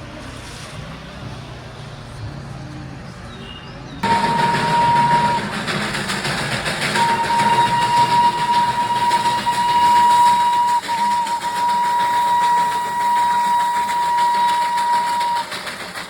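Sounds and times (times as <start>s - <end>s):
train whistle blasts: 4.0s - 5.8s, 6.9s - 15.8s
toy train running: 4.0s - 16.0s.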